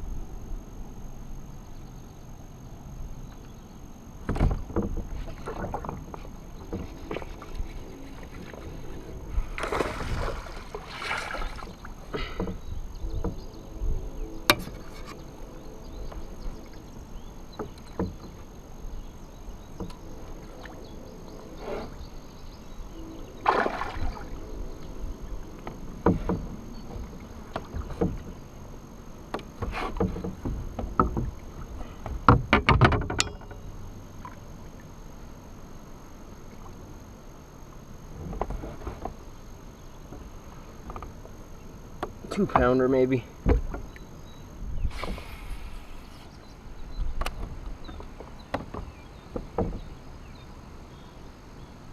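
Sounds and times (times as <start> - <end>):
knocks and scrapes in a kayak: 4.2 - 13.7, 14.4 - 16.7, 25.4 - 28.5, 29.3 - 33.5, 38.1 - 39.4, 42.0 - 44.0, 44.6 - 50.4.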